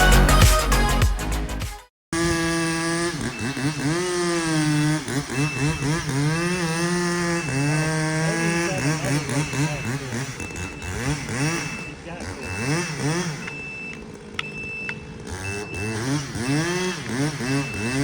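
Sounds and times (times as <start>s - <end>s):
heavy-equipment engine changing speed: 2.2s - 18.0s
backup alarm beeping: 5.2s - 16.6s, 17.4s - 18.0s.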